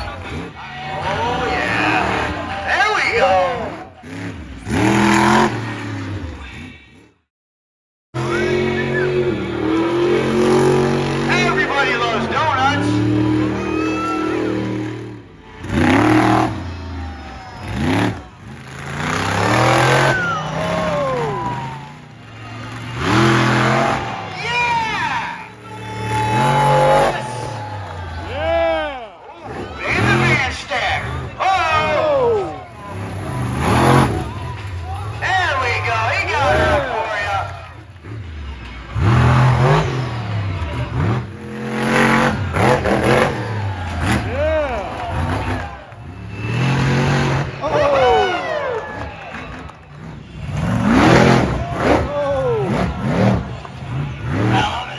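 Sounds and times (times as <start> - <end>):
monster truck engine revving: 0.0 - 7.3, 8.2 - 54.9.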